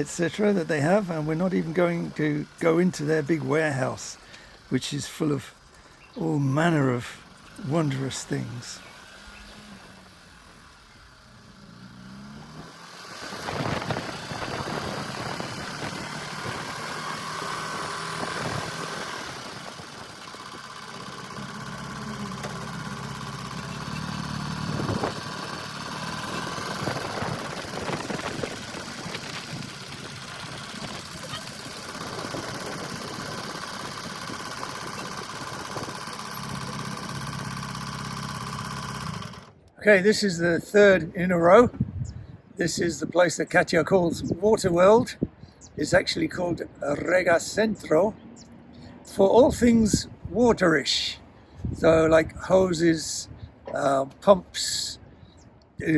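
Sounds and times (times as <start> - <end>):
motorcycle engine running: 0.0 - 39.7.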